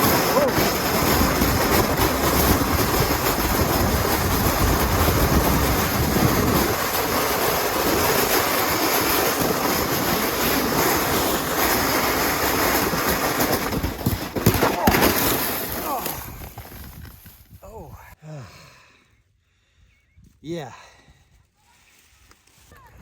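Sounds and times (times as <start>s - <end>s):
sled scraping over ice: 0.0s - 17.4s.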